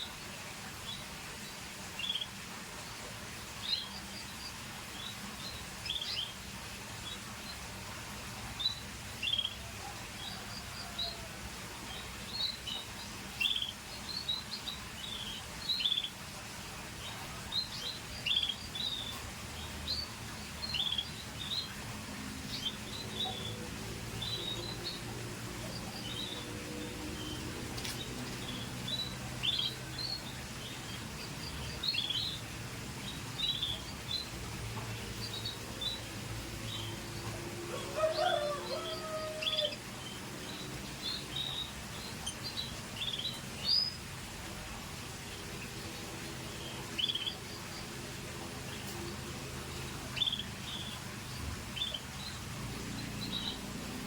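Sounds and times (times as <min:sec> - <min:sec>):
canary chirping: 0:25.7 - 0:32.4.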